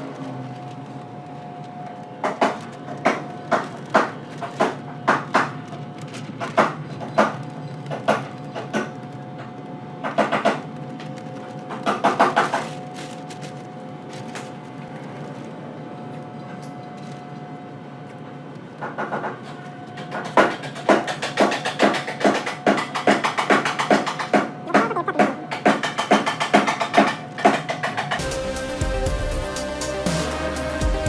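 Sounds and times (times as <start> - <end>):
sharp knocks: 20.1 - 28.2
steady machine hum: 28.0 - 31.0.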